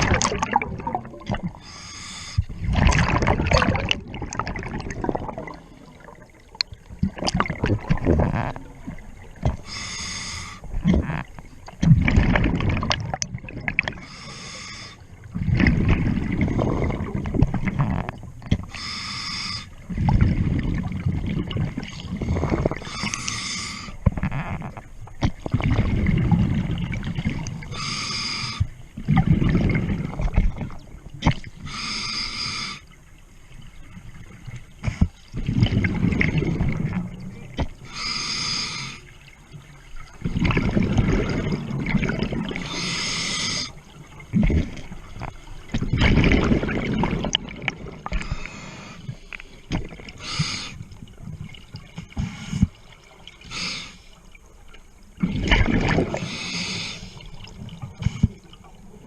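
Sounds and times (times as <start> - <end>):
gurgling exhaled bubbles: 0.0 - 1.8, 2.4 - 9.8, 10.6 - 14.2, 15.2 - 19.0, 19.8 - 31.9, 34.0 - 38.0, 39.3 - 53.8, 55.1 - 59.0
diver inhaling through regulator: 1.5 - 2.6, 9.6 - 10.7, 14.0 - 15.1, 18.7 - 19.8, 22.2 - 24.0, 27.7 - 28.7, 31.6 - 32.9, 37.8 - 39.1, 42.6 - 43.8, 48.1 - 49.3, 50.2 - 50.9, 53.5 - 54.2, 56.1 - 57.3.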